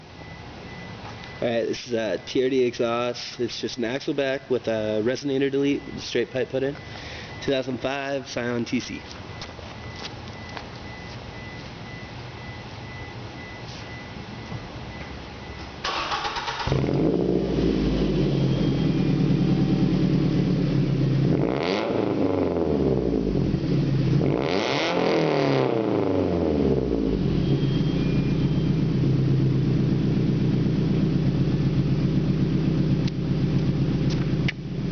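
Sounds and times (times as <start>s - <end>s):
car engine cranking and starting: 15.8s - 25.4s
car engine revving: 15.9s - 34.9s.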